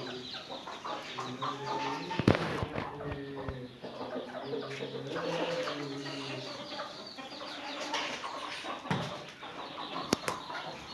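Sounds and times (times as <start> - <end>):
chickens clucking: 0.0 - 10.9.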